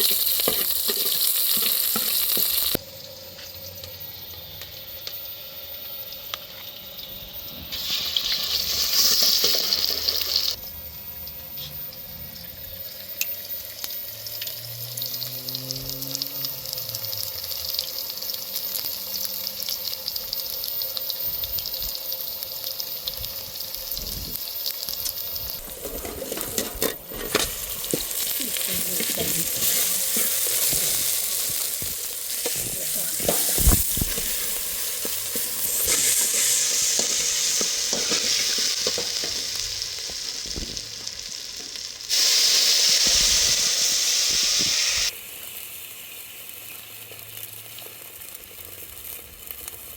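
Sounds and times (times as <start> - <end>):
food sizzling in a pan: 0.0 - 49.9
knocks and scraping: 25.5 - 36.2.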